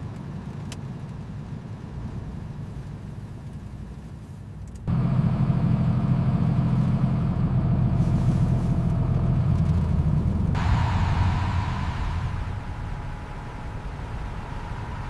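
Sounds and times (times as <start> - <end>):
truck engine humming: 4.9 - 15.0.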